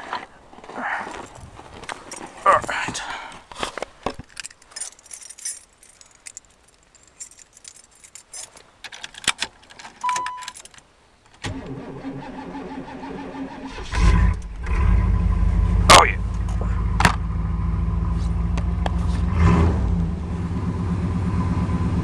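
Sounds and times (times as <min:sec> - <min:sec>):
keys jangling in ignition: 0:04.2 - 0:10.8
car engine cranking and starting: 0:09.2 - 0:22.0
short beep: 0:10.0 - 0:10.6.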